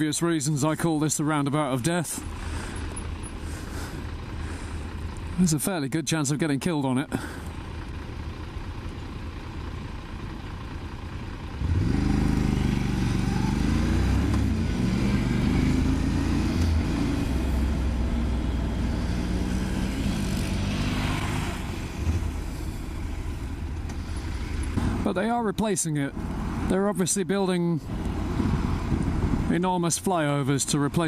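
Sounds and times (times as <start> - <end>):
motorcycle engine accelerating: 11.1 - 25.1
wind rush: 28.2 - 29.5.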